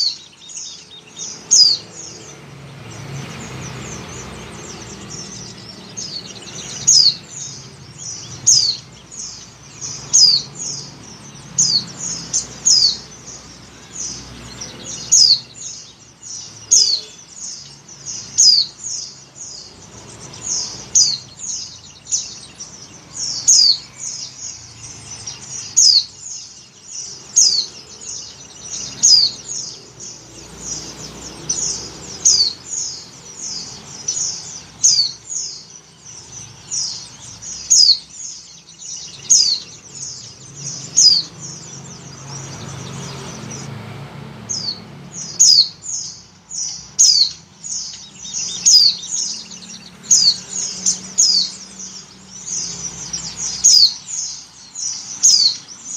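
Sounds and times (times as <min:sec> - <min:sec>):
bird chirping: 0:00.0 - 0:55.9.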